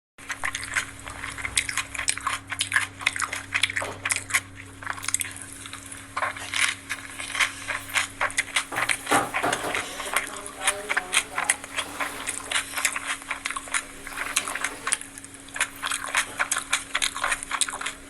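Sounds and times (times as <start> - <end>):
quick crackly clicks: 0.2 - 8.8
chewing and crunching food: 0.2 - 18.0
steady low hum: 0.2 - 18.0.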